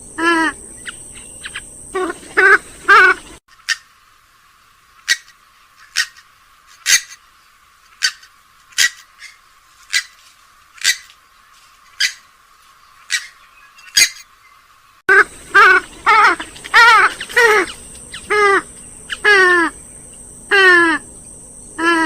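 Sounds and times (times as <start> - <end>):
wavering bird call: 0.2 - 3.9, 5.0 - 6.2, 8.0 - 10.2, 13.0 - 14.3, 15.1 - 21.1, 21.7 - 22.0
waterbird short sharp calls: 15.1 - 19.7.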